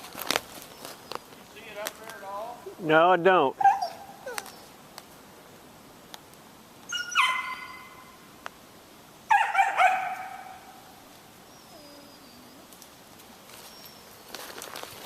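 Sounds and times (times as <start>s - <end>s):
dog barking high yelps: 3.6s - 4.6s, 6.9s - 8.1s, 9.3s - 10.8s.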